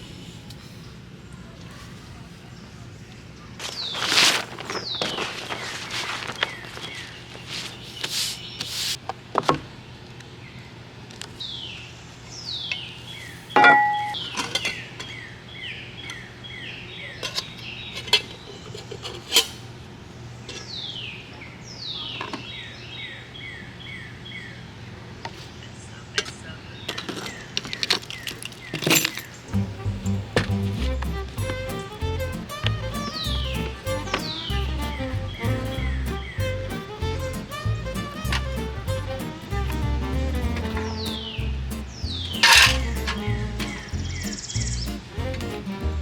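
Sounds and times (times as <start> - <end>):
songbird singing: 11.4 - 18.6, 25.2 - 46.0
metal cookware clinking: 13.6 - 14.4, 42.4 - 43.2.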